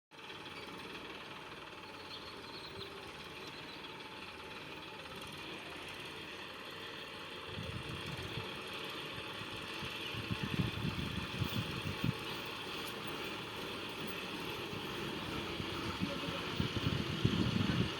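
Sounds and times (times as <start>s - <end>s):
diesel engine running: 0.1s - 17.9s.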